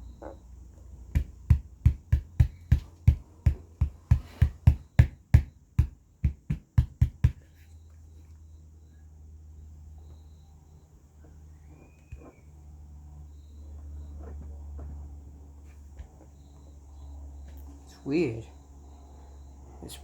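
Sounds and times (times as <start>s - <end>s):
speaker cone thumping: 1.1s - 7.5s.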